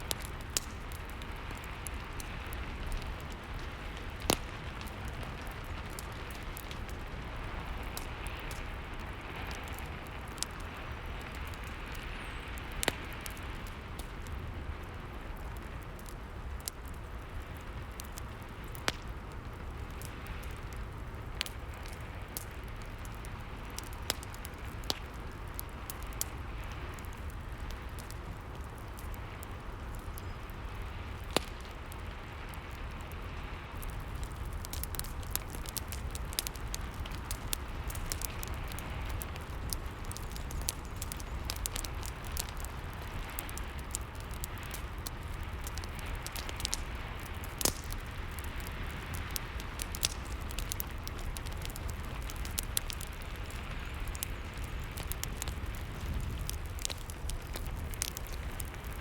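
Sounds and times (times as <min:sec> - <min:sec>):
fire crackling and popping: 0:00.0 - 0:59.0.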